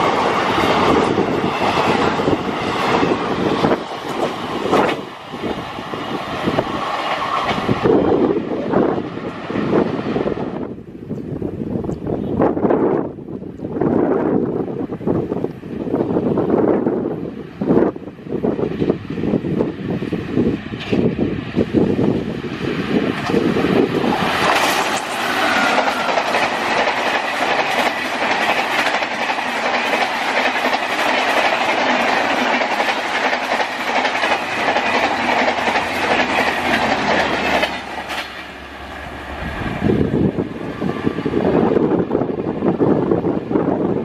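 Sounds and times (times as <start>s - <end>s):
train wheels clattering: 23.0s - 38.6s.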